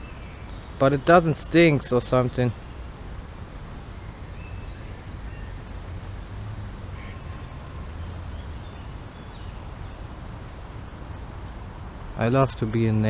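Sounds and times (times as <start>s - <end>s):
faint bird calls: 0.0s - 13.0s
wind rumbling on microphone: 0.0s - 13.0s.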